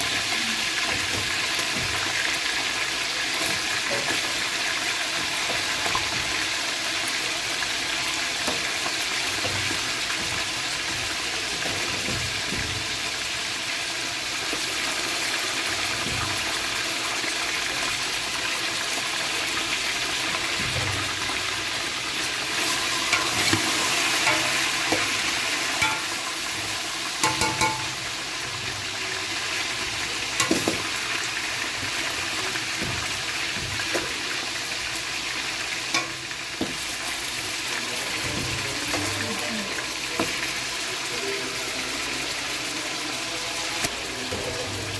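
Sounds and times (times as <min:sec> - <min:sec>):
food sizzling in a pot: 0:00.0 - 0:44.9
metal spoon knocking on pot: 0:25.8 - 0:26.2, 0:27.2 - 0:28.0.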